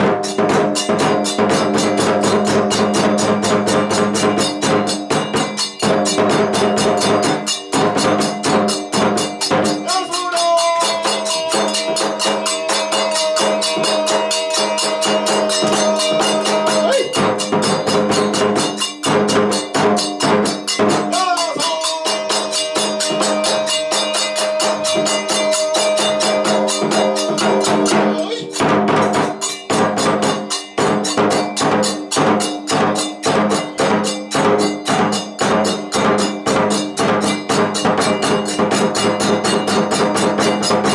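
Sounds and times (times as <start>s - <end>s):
fast drum beats: 0.0s - 40.9s
hand cymbal beats: 0.0s - 40.9s
flute long sliding notes: 22.7s - 28.4s.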